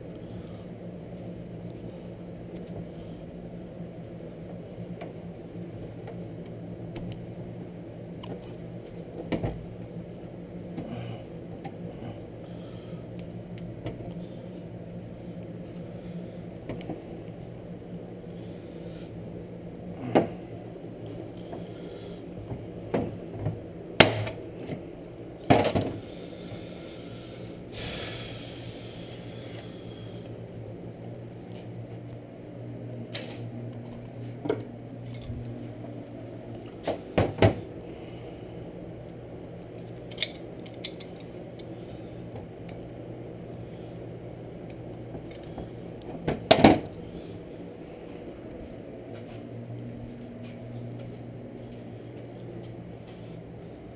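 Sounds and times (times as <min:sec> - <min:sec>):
steady low hum: 0:00.0 - 0:53.9
metal parts clicking and clanking: 0:40.1 - 0:41.3.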